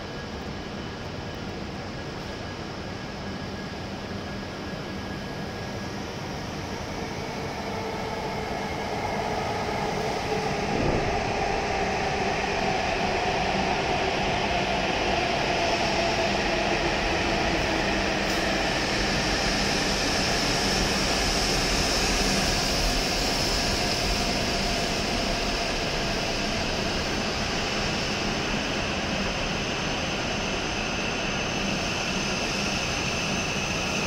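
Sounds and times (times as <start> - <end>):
train rolling into station: 7.0 - 20.0.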